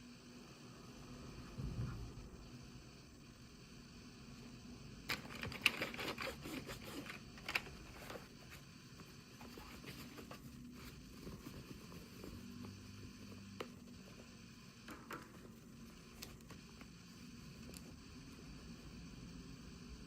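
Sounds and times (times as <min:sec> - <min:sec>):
faint handling sounds: 0:05.1 - 0:18.0.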